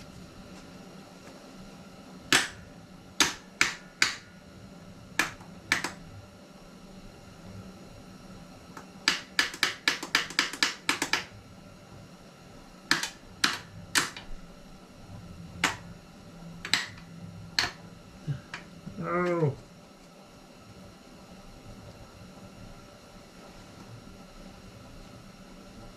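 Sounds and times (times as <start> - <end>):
sharp clicks: 5.2 - 6.0.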